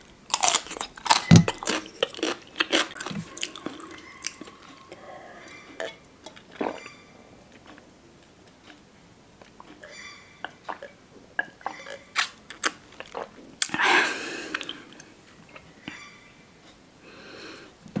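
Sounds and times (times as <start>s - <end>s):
chewing: 0.3s - 7.9s.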